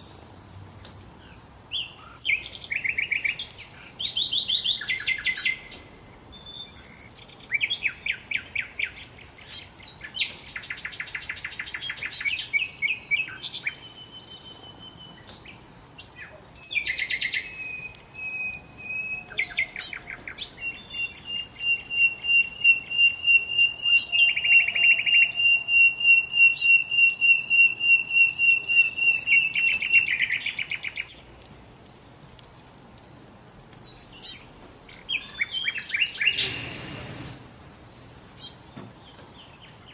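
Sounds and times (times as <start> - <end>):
songbirds chirping: 0.0 - 39.9
bird trilling: 16.2 - 31.1, 33.8 - 37.0.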